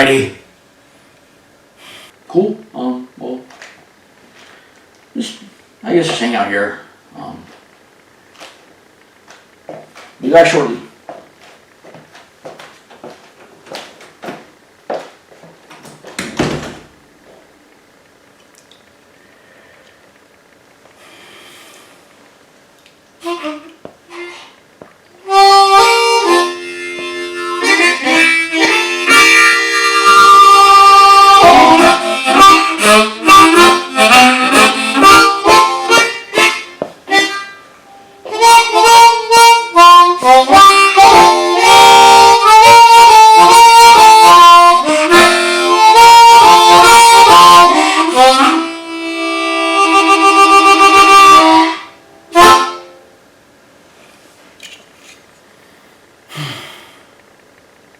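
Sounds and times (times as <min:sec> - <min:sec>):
blues harmonica playing: 0:23.2 - 0:24.6, 0:25.2 - 0:53.1.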